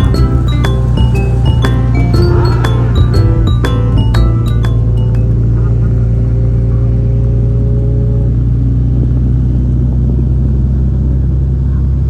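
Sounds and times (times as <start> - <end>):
faint high held tone: 0.0 - 6.2
motorcycle engine running: 0.0 - 12.0
other motorcycles: 0.0 - 12.0.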